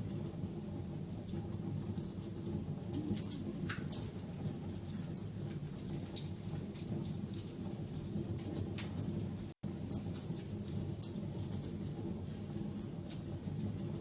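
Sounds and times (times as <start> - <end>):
low steady sound of burning: 0.0 - 14.0
wood fire crackling and popping: 0.0 - 14.0.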